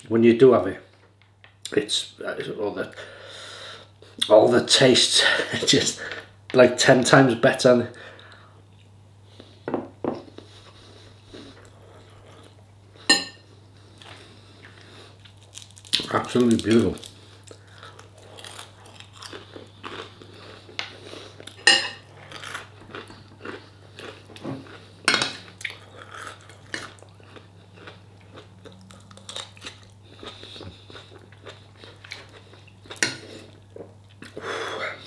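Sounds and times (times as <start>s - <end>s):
fork clinking against bowl: 13.1s - 13.4s, 21.6s - 22.0s
chewing crisp food: 13.8s - 34.4s.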